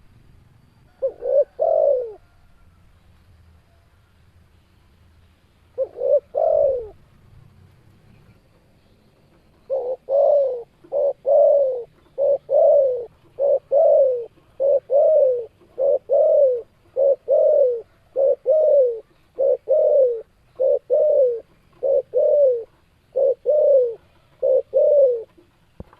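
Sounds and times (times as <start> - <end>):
dove cooing: 0.9 - 2.6, 5.7 - 7.0, 9.3 - 25.9.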